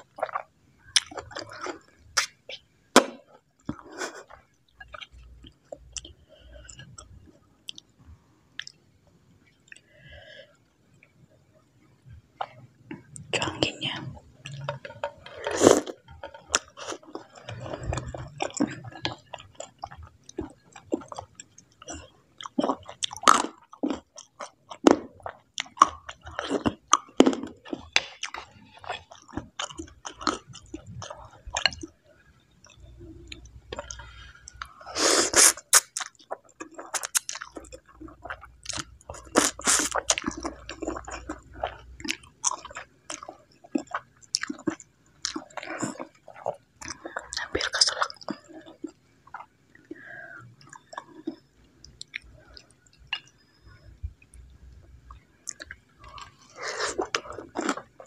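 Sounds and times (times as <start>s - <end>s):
wet chewing and mouth smacks: 35.4s - 58.0s.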